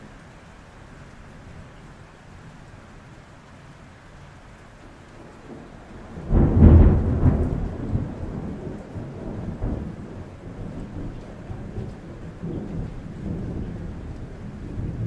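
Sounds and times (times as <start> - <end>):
rain on a roof: 0.0 - 15.0
thunder crack and rumble: 5.2 - 15.0.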